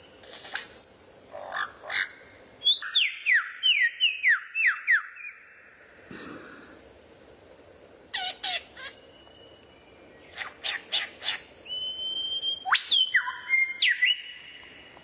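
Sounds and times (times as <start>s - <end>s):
songbird whistling: 2.6s - 5.5s, 10.3s - 14.6s.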